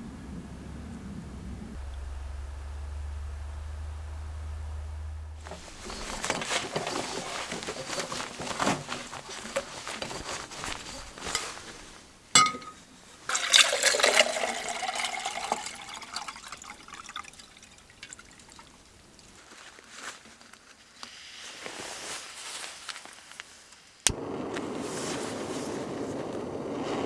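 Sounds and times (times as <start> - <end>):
liquid pouring into container: 13.3 - 19.4.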